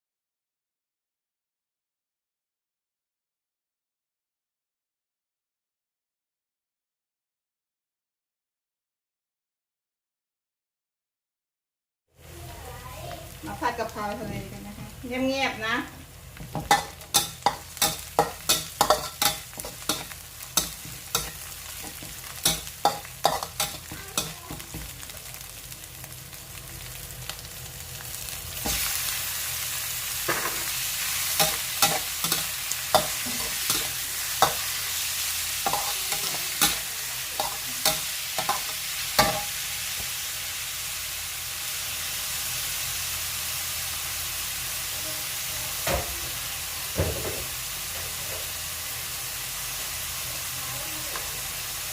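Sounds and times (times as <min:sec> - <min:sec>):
food sizzling: 0:12.2 - 0:51.9
spatula clanking on metal pan: 0:16.5 - 0:24.9, 0:30.3 - 0:34.8, 0:35.6 - 0:39.6.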